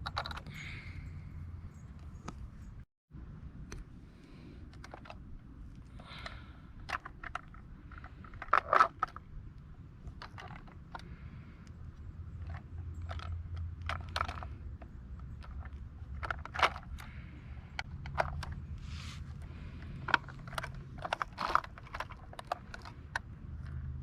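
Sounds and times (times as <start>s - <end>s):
toy truck clicks and scrapes: 0.0s - 0.5s, 6.0s - 9.3s, 10.0s - 11.7s, 12.4s - 24.0s.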